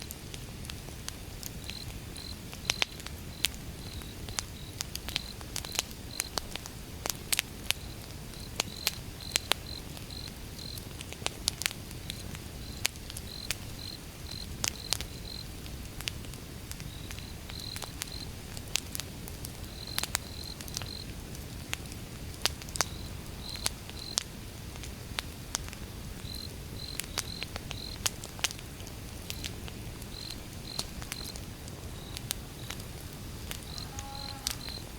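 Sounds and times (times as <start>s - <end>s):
low rumble of burning: 0.0s - 34.9s
wood fire crackling and popping: 0.0s - 34.9s
cricket chirping: 1.6s - 6.3s, 7.8s - 10.8s, 12.1s - 15.5s, 16.9s - 18.3s, 19.7s - 21.0s, 22.8s - 24.2s, 26.2s - 28.0s, 30.1s - 31.4s, 33.6s - 34.9s.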